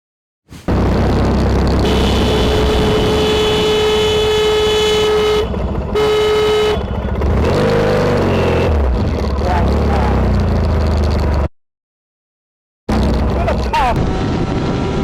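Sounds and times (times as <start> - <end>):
engine and road noise: 0.5 - 11.5, 12.9 - 15.0
vehicle horn blasts: 1.8 - 7.2.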